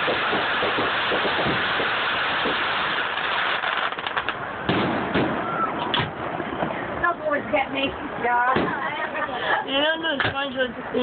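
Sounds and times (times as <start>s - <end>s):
firework bang: 0.0s - 6.8s, 8.5s - 8.8s
firework pops: 0.0s - 6.8s
fireworks crackling: 0.0s - 9.1s.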